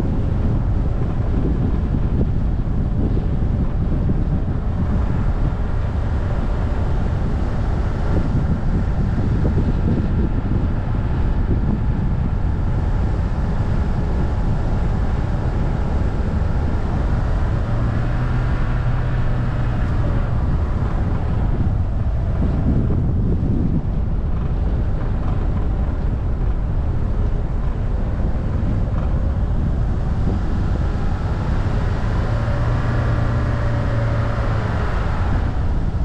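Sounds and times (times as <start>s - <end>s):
car engine humming: 0.0s - 36.0s
tyre and road rumble: 0.0s - 36.0s
wind rushing: 0.0s - 36.0s.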